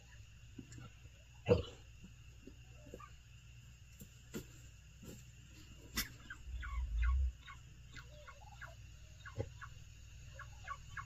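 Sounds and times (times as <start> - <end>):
birds chirping: 5.9 - 11.0
low rumble on microphone: 6.4 - 7.5.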